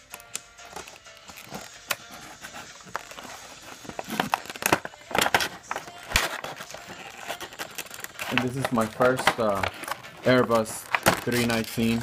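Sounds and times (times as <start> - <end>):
packaging clicks: 0.0 - 12.0
cardboard and plastic rustling: 0.6 - 12.0.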